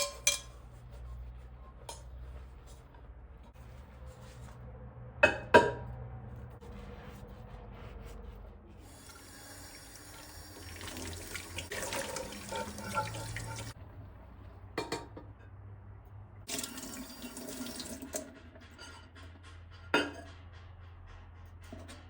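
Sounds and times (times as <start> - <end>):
tap water running into sink: 9.0 - 13.8, 16.5 - 18.2.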